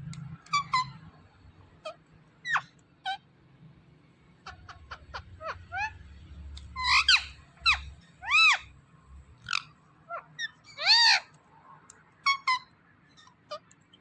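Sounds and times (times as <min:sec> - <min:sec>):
parrot squawking: 0:00.4 - 0:01.1, 0:01.8 - 0:03.2, 0:06.8 - 0:08.7, 0:09.4 - 0:11.3, 0:12.2 - 0:13.6.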